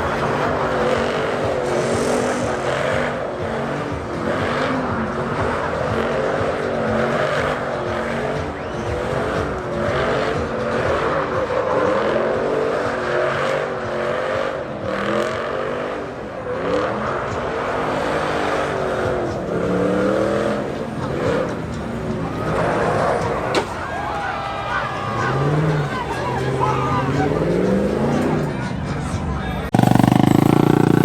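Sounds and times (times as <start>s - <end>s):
truck engine revving hard: 0.0s - 23.8s, 24.5s - 31.0s
steady rushing noise: 1.2s - 5.0s.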